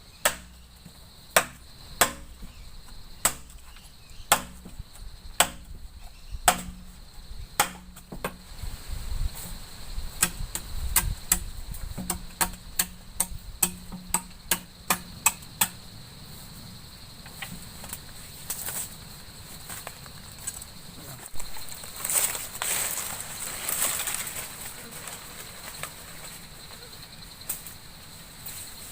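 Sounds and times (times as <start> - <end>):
cricket trill: 0.0 - 28.9
tool chopping into wood: 0.2 - 0.6, 1.4 - 2.6, 3.2 - 4.8, 5.4 - 5.8, 6.4 - 6.9, 7.6 - 8.4, 10.2 - 15.8.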